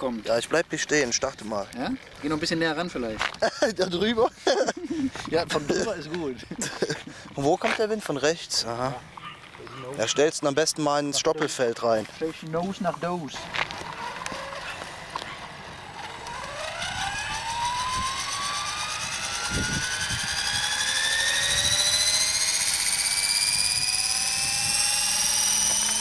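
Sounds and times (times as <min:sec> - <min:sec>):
rc helicopter motor whine: 0:13.3 - 0:26.0.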